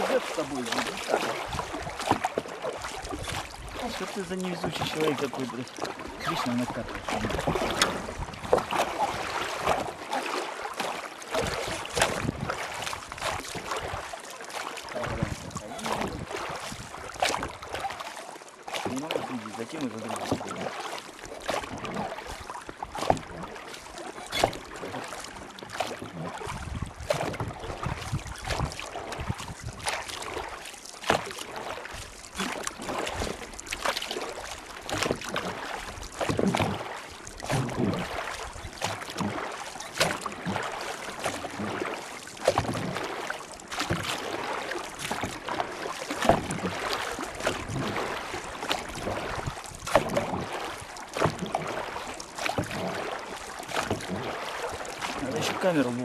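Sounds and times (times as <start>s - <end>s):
water sloshing and splashing: 0.0s - 56.0s
wind on microphone: 11.4s - 12.6s, 15.0s - 17.1s, 26.4s - 29.9s.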